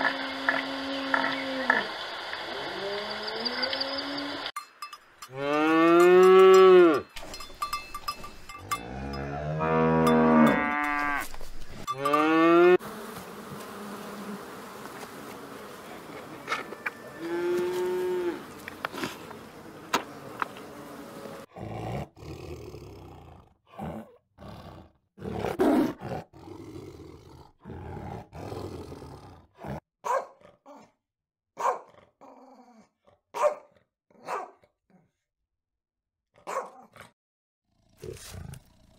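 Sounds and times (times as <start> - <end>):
cows mooing: 5.3 - 7.1, 8.6 - 12.8, 15.8 - 21.5
calf mooing: 5.4 - 7.1, 8.7 - 12.8, 16.4 - 18.7.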